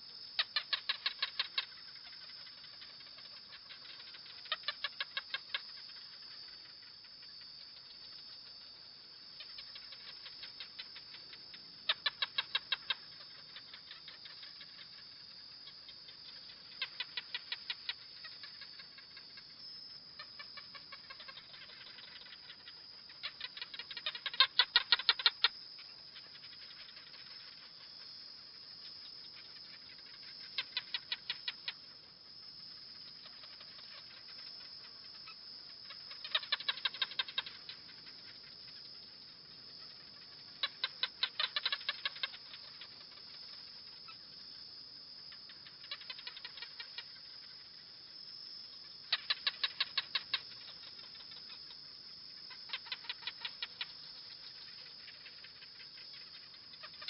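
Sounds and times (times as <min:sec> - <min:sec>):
gecko chirping clicks: 0:49.1 - 0:51.7.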